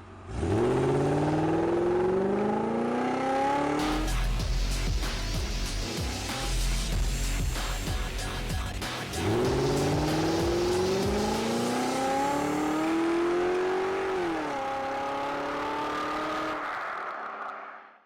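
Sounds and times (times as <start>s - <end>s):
car engine accelerating hard: 0.0s - 5.0s, 9.2s - 17.7s.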